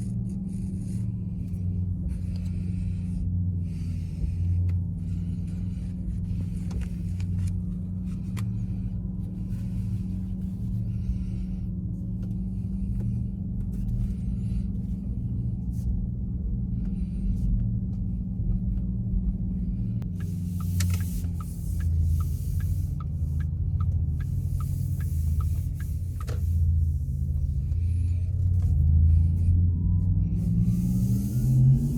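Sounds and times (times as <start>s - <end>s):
car road rumble: 0.0s - 31.9s
turn signal ticking: 17.6s - 31.9s.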